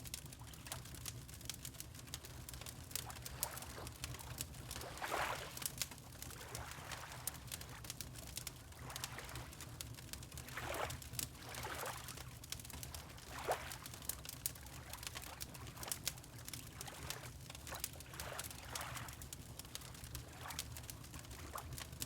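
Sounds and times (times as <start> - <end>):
wood fire crackling: 0.0 - 6.6, 7.2 - 13.2, 13.8 - 15.3, 16.0 - 16.9, 19.2 - 22.0
water lapping: 2.6 - 7.8, 8.7 - 9.6, 10.5 - 12.2, 13.0 - 14.0, 16.6 - 19.2.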